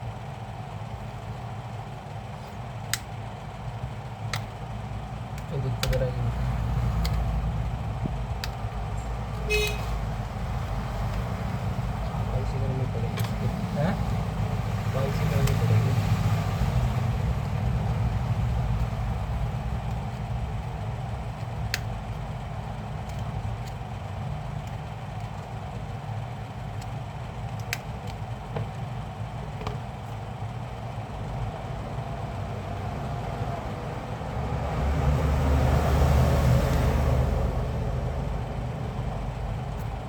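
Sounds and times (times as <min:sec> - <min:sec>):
steady low rumble: 0:00.0 - 0:40.0
sharp clicks: 0:06.9 - 0:07.3.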